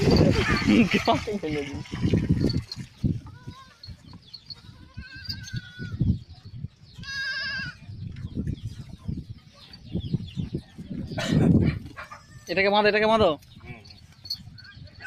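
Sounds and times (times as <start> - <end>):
hooves shuffling and knocking: 0.0 - 7.2, 11.7 - 15.0
goat bleating: 7.0 - 7.8.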